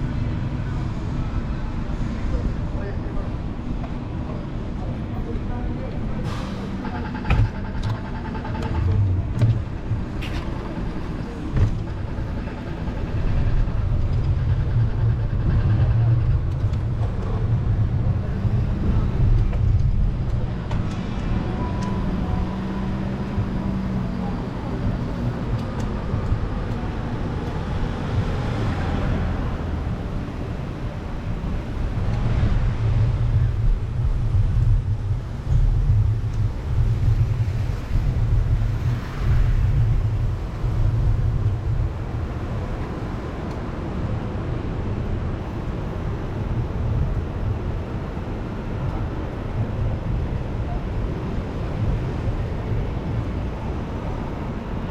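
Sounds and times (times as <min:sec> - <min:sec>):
cars passing: 0:00.0 - 0:54.9.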